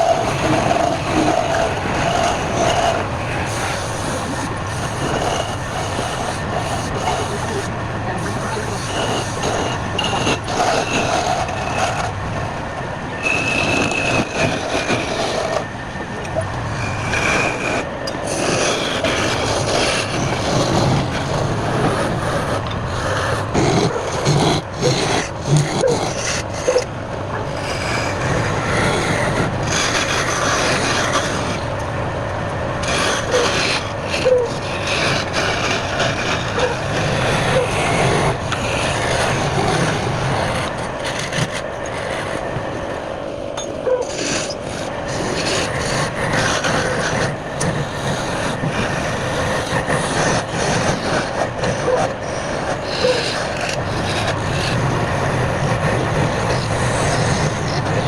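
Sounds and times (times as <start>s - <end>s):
wood rasping on a lathe: 0.0s - 58.0s.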